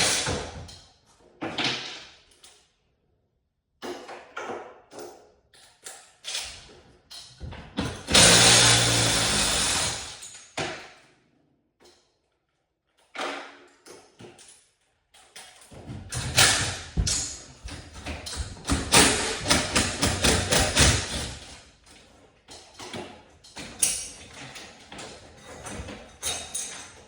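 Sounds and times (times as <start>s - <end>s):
sharp knocks and thumps: 15.8s - 21.3s.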